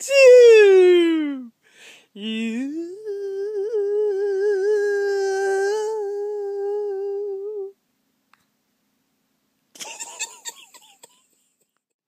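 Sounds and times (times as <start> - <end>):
woman singing long note: 2.2 - 7.8.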